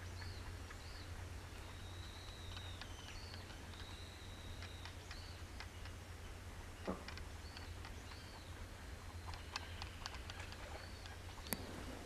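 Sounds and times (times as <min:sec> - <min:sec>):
faint clicks: 0:00.0 - 0:06.0, 0:06.8 - 0:08.5, 0:09.2 - 0:11.7
bird whistling: 0:00.2 - 0:05.5.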